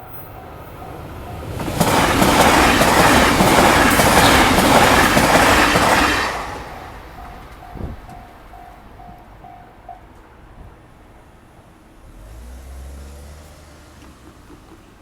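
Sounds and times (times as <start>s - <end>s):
crossing warning bell ringing: 0.0s - 10.6s
train wheels clacking over rail joints: 0.8s - 10.3s, 13.9s - 15.0s.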